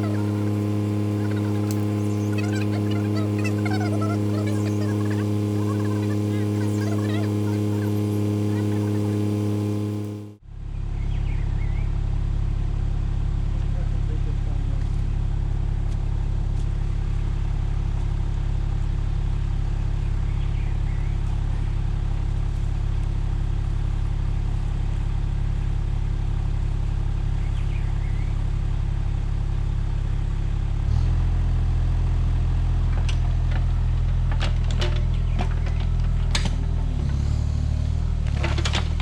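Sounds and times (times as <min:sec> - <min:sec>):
excavator engine running: 0:00.0 - 0:39.0.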